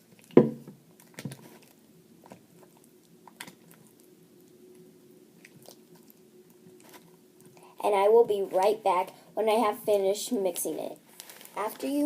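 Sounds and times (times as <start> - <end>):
wet squishing of slime: 0.0 - 7.7
thump: 0.4 - 0.6.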